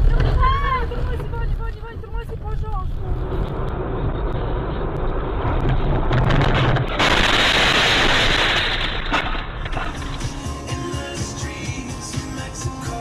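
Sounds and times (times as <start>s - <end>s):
vehicle road noise: 0.0s - 7.2s
loud rush of noise: 2.7s - 11.4s.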